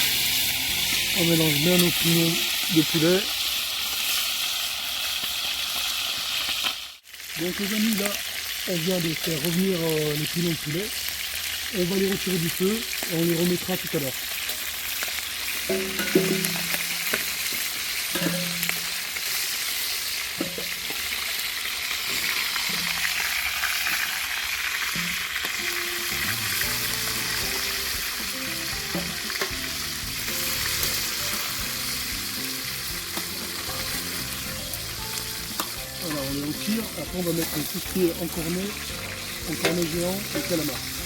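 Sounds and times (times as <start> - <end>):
chicken sizzling in oil: 0.0 - 41.0
faint background music: 25.6 - 41.0.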